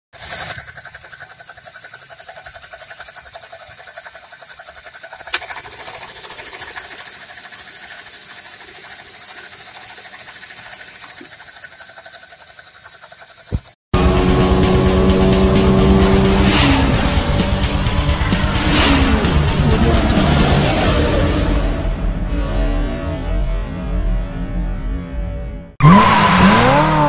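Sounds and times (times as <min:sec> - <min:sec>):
fast even ticking: 0:00.2 - 0:13.7.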